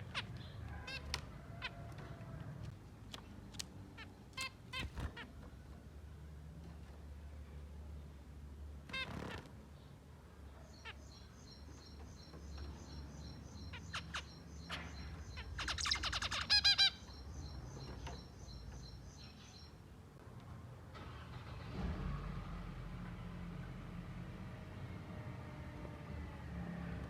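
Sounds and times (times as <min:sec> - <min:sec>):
loud nasal finch calls: 0:00.0 - 0:01.8, 0:10.7 - 0:19.7
finches peeping: 0:10.7 - 0:19.8.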